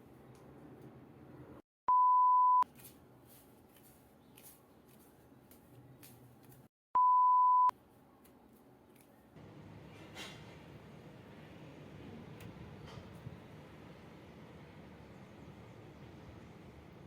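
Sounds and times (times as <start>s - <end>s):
electronic beeps: 7.0s - 7.7s.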